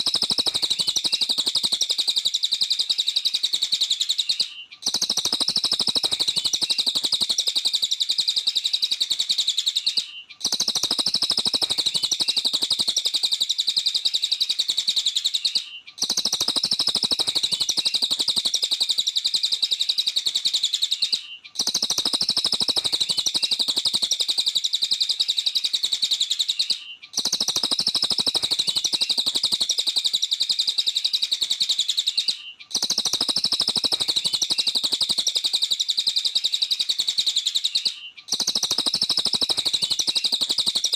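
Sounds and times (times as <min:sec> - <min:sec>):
songbird chirps and trills: 0:00.0 - 0:40.9.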